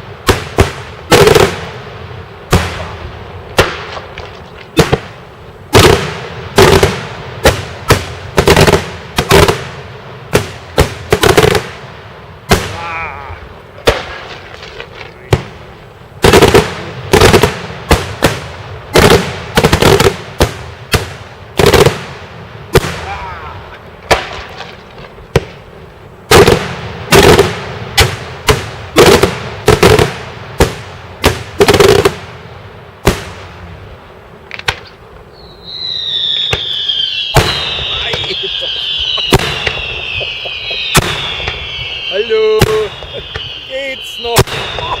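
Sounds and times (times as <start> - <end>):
fireworks exploding with loud bangs: 0.0 - 45.0
falling firework whistles: 34.8 - 45.0.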